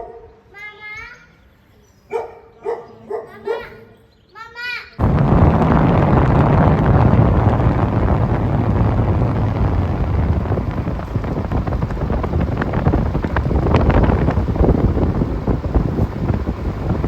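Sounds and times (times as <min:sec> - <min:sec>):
scattered crackles: 0:05.0 - 0:17.0
wind buffeting microphone: 0:05.0 - 0:17.0.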